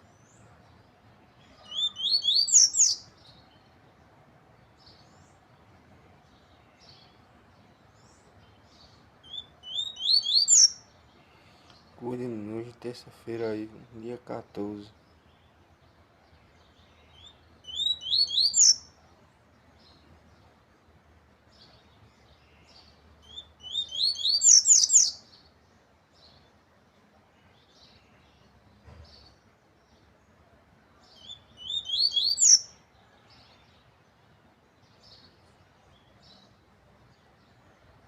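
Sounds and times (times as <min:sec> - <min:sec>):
faint short bird calls: 0:01.4 - 0:03.0.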